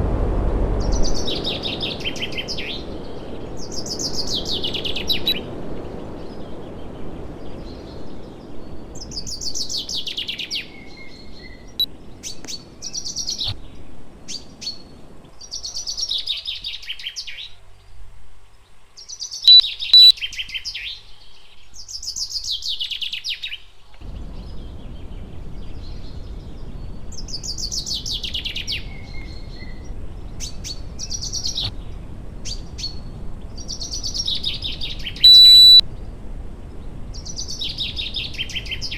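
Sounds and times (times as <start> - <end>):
short electronic beeps: 19.5 - 20.1, 35.2 - 35.8
songbird trilling: 19.5 - 20.1, 35.2 - 35.8
low steady hum: 35.2 - 37.0.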